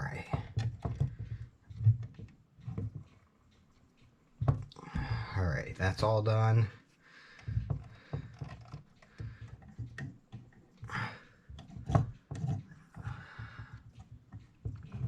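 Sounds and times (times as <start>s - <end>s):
clock parts clicking and tapping: 0.0s - 15.0s
person breathing: 4.8s - 5.6s, 6.7s - 9.8s, 10.8s - 11.6s, 12.9s - 14.0s.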